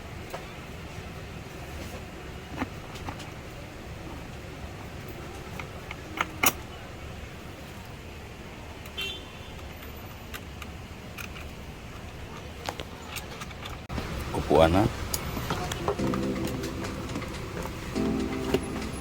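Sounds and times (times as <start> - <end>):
steady low background hum: 11.1 - 19.0.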